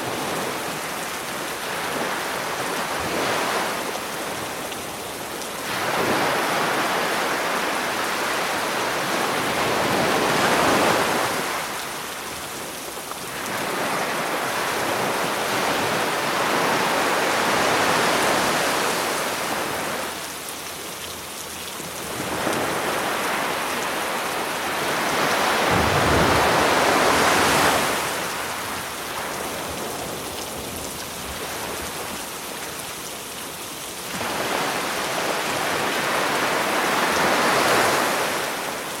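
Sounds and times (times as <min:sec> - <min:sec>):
sea waves washing on shore: 0:00.0 - 0:39.0
steady rain hissing: 0:00.0 - 0:39.0.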